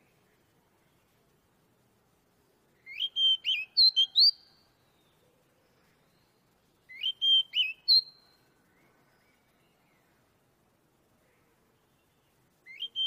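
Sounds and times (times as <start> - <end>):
bird whistling song: 2.8 - 5.2, 6.1 - 8.4, 12.6 - 13.0.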